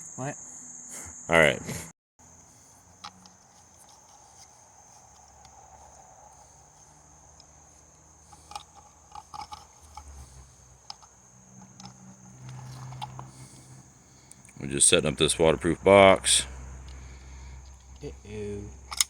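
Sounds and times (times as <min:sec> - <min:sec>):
crickets trilling: 0:00.0 - 0:19.0
small clicks and knocks: 0:02.4 - 0:13.7.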